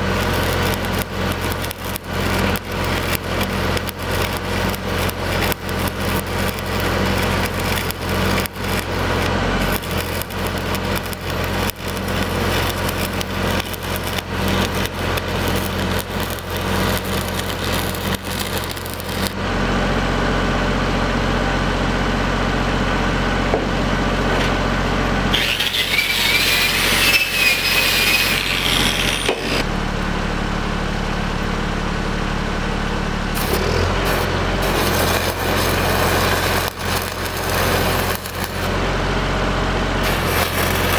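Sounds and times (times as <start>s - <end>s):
irregular crackling: 0.0s - 19.4s, 25.3s - 29.6s, 33.4s - 38.7s, 40.0s - 40.9s
engine running: 0.0s - 40.9s
high scraping squeal: 25.3s - 29.7s, 33.4s - 38.7s, 40.0s - 40.9s.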